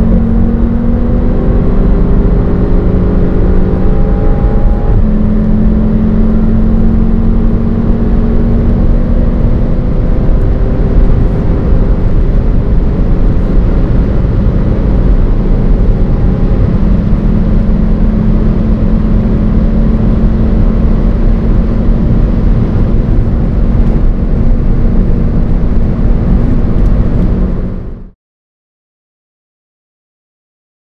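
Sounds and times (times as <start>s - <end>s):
car engine drone: 0.0s - 28.2s
road and wind noise: 0.0s - 28.2s.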